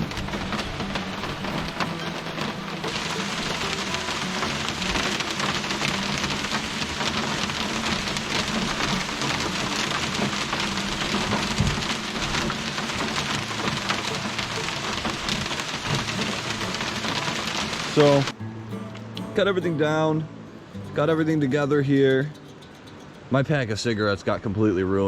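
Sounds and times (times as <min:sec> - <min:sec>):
rain pattering: 0:00.0 - 0:18.4.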